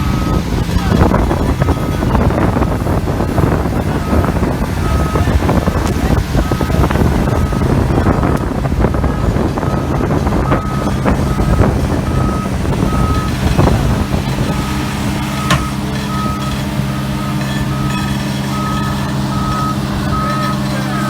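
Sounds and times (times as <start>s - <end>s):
diesel engine under load: 0.0s - 21.0s
reversing alarm beeps: 0.0s - 21.0s
sharp metallic clank: 15.4s - 16.0s.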